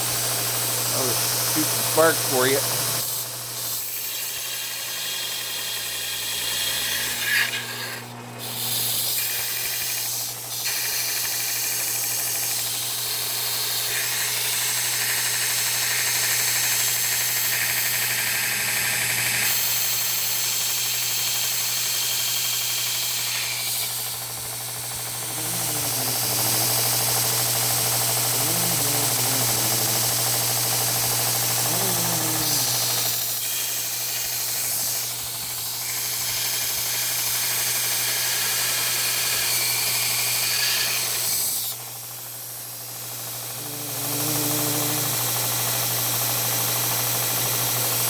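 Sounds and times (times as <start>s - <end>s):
motor humming: 23.2s - 36.2s, 43.5s - 45.5s.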